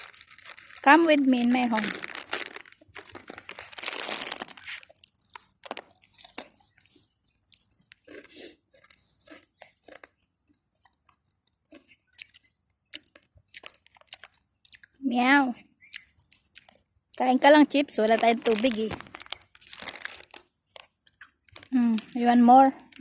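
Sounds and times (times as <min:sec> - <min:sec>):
chip bag crinkling: 0:00.0 - 0:10.2, 0:13.0 - 0:14.8, 0:17.9 - 0:23.0
cat crunching chips: 0:00.0 - 0:15.0, 0:18.0 - 0:23.0.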